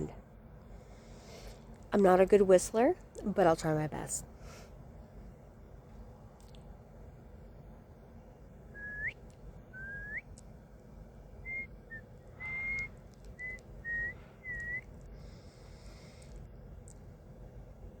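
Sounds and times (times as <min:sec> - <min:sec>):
man whistling: 0:08.7 - 0:10.3, 0:11.4 - 0:14.9.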